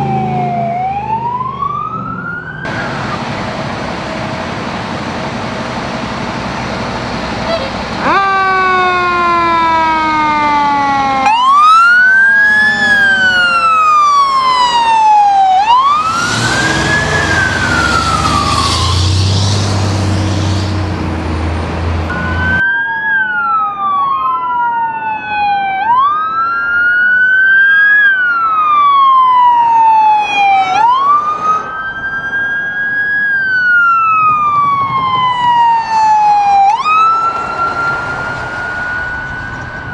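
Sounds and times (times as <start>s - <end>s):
emergency sirens wailing: 0.0s - 39.9s
vehicle passing with low rumble: 11.4s - 22.6s, 36.3s - 39.9s.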